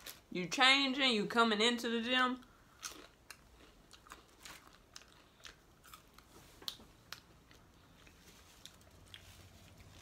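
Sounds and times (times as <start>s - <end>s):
person chewing: 2.5s - 10.0s.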